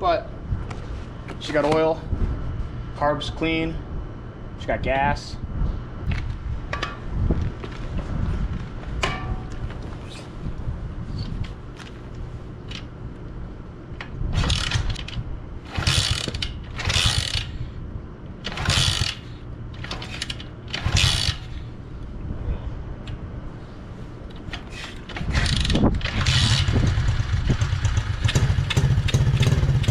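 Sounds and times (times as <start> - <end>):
engine turning over: 14.3 - 17.6, 18.4 - 21.6, 25.1 - 29.9
kickstarter ratcheting: 14.4 - 17.6, 18.4 - 21.6, 24.6 - 29.9.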